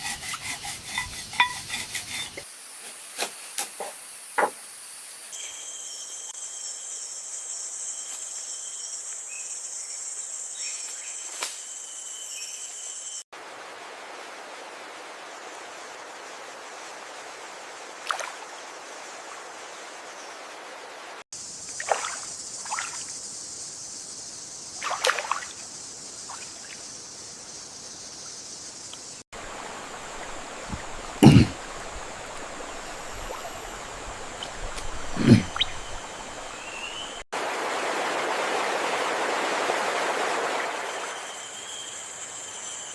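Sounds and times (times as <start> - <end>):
outdoor ambience: 0.0 - 9.4, 21.4 - 38.6
trickling water: 29.4 - 38.6.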